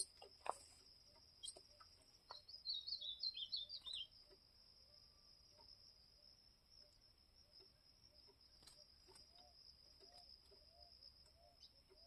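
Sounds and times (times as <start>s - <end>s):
bird singing whistled notes: 2.3s - 4.2s.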